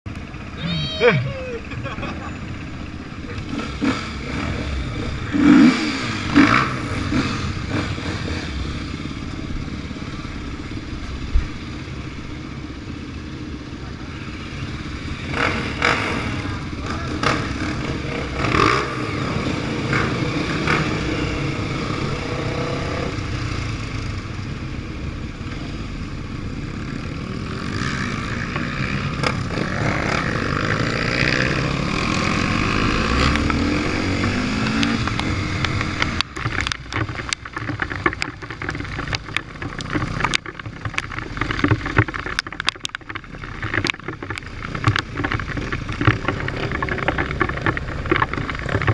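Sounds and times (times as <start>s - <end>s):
motorcycle engines revving: 0.1s - 48.9s
sharp knocks and clatter: 32.1s - 48.9s.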